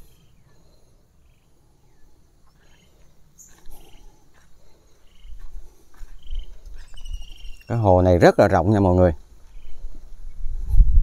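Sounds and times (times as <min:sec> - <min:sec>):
bird chirps: 0:00.0 - 0:04.2, 0:04.9 - 0:08.2, 0:09.5 - 0:10.6
wind rumble on microphone: 0:09.4 - 0:11.0.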